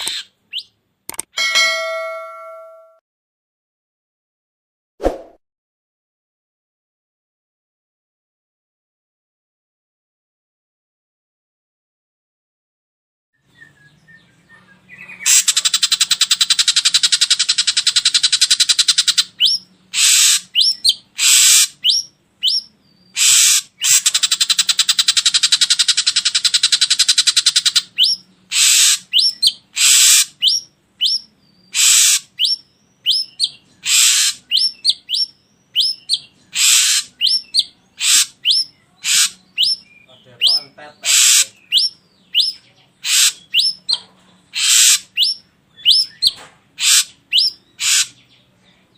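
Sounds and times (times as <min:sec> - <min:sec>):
bird calls and whistled notes: 0:13.4 - 0:48.6
bird harsh rasping buzzes: 0:15.2 - 0:39.8, 0:41.0 - 0:43.8, 0:44.5 - 0:46.2, 0:46.8 - 0:48.2.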